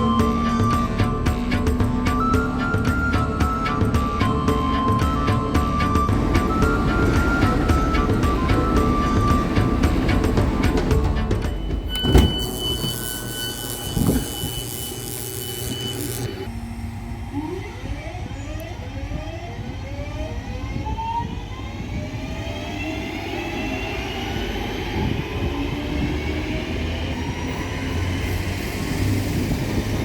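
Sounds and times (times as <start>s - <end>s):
wheels rumbling on rail: 6.1s - 14.4s
train motor whine rising: 6.1s - 17.9s.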